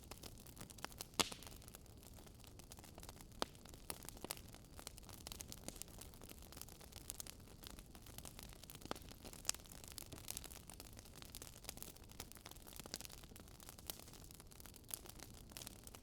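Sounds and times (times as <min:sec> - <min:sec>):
wood fire crackling faintly: 0:00.0 - 0:16.0.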